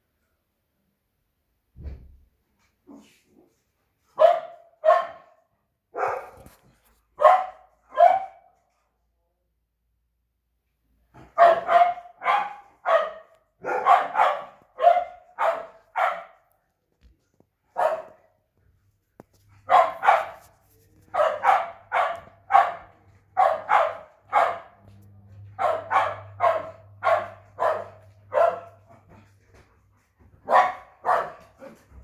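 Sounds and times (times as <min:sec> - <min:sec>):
dogs barking: 0:04.2 - 0:05.3, 0:06.0 - 0:06.4, 0:07.2 - 0:08.5, 0:11.2 - 0:16.4, 0:17.8 - 0:18.2, 0:19.7 - 0:20.5, 0:21.1 - 0:29.3, 0:30.4 - 0:31.8.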